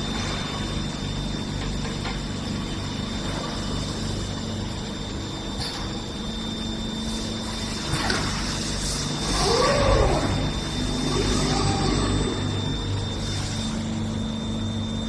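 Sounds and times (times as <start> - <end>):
thin high whine: 2.6 - 15.0
welding machine humming: 6.8 - 15.0.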